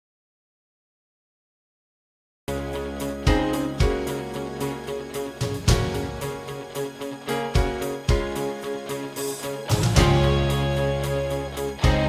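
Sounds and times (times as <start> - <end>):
background music: 2.5 - 12.0.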